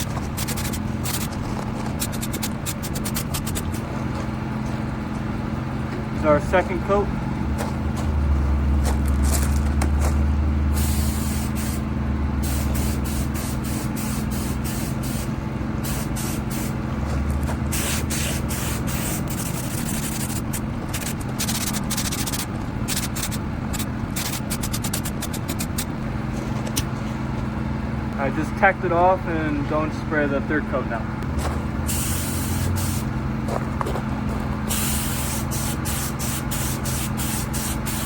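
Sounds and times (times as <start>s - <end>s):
paint spray gun hissing: 0.0s - 1.3s, 2.0s - 3.8s, 10.8s - 11.8s, 12.4s - 16.8s, 17.7s - 25.9s, 31.9s - 33.1s, 34.7s - 38.0s
steady low hum: 0.0s - 38.0s.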